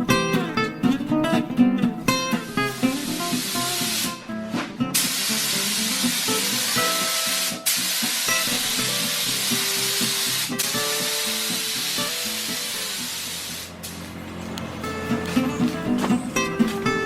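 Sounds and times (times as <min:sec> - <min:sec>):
loud spraying hiss: 0:02.5 - 0:04.2, 0:05.0 - 0:14.0.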